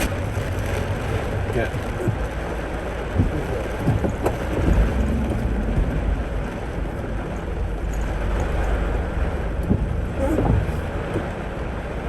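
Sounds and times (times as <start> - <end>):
rain and wind on car body: 0.0 - 12.0
road rumble in car cabin: 0.0 - 12.0.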